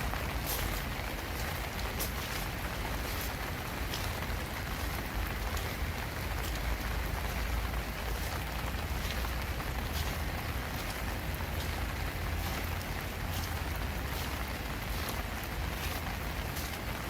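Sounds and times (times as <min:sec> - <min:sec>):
rain hissing: 0:00.0 - 0:17.0
raindrop ticks: 0:00.0 - 0:17.0.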